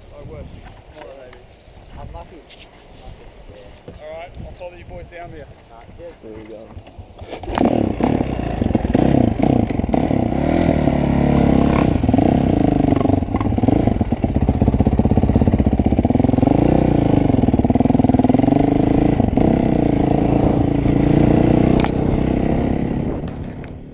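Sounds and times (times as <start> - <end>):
dirt bike engine revving: 7.4 - 23.7.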